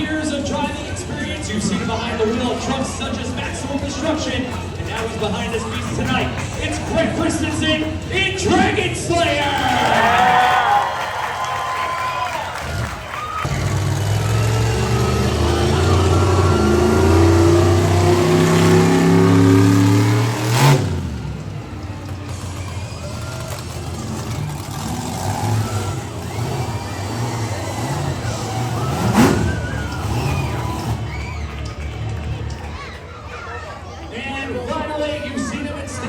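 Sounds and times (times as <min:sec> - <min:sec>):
monster truck engine revving: 0:00.0 - 0:34.0
sharp bangs: 0:12.6 - 0:31.7.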